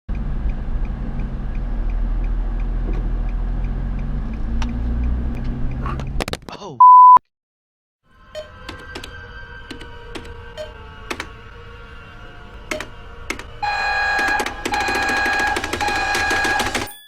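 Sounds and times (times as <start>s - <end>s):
car engine running: 0.1s - 6.2s
loud single beep: 6.8s - 7.2s
music: 8.0s - 17.0s.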